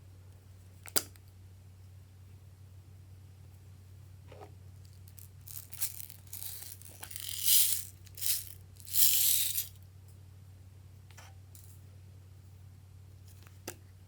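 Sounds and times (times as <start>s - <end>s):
small bits rattling in container: 5.1s - 9.8s.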